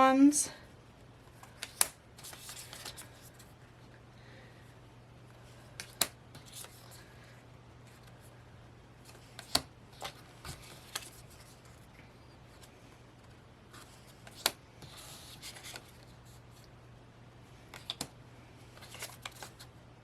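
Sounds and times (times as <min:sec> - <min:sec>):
faint hum: 0:00.0 - 0:20.0
cards clicking and tapping: 0:01.4 - 0:03.1, 0:05.8 - 0:06.7, 0:09.3 - 0:11.1, 0:14.2 - 0:14.6, 0:17.7 - 0:18.1.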